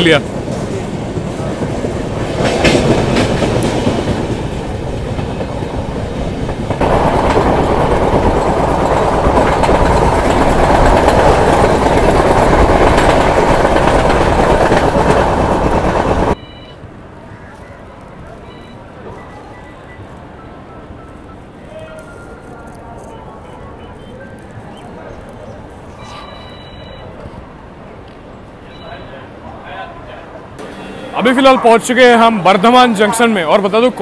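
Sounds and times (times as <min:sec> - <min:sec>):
clickety-clack over rail joints: 0:00.0 - 0:16.4
train wheels rumbling on rails: 0:00.0 - 0:16.4.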